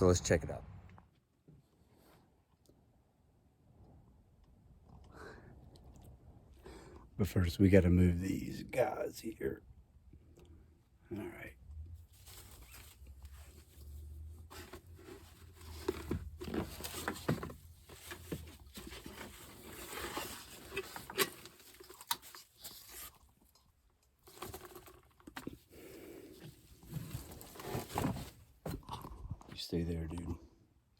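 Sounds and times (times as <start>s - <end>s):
rustling and scraping objects: 12.0s - 29.6s.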